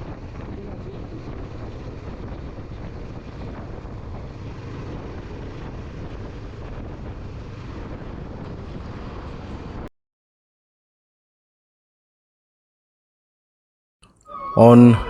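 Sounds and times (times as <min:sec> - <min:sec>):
vehicle running noise: 0:00.0 - 0:09.9
wind buffeting microphone: 0:00.0 - 0:09.9.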